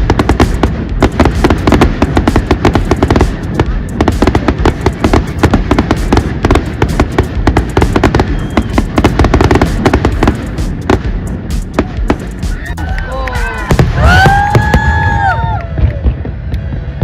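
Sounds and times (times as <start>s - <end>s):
fireworks exploding: 0.0s - 17.0s
low rumble: 13.6s - 17.0s.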